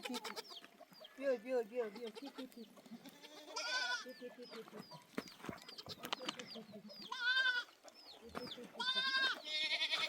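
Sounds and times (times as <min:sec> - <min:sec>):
goat bleating: 0:00.0 - 0:00.6, 0:01.3 - 0:04.3, 0:07.0 - 0:07.8, 0:08.7 - 0:10.0.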